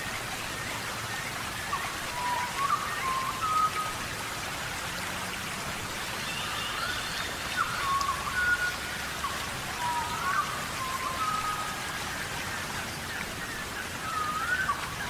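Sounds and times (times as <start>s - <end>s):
heavy rain: 0.0s - 15.0s
high whistling calls: 6.3s - 12.0s, 14.0s - 15.0s.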